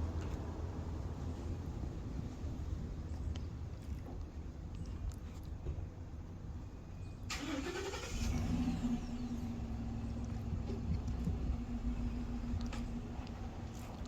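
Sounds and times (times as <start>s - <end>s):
car engine starting and idling: 7.3s - 14.0s.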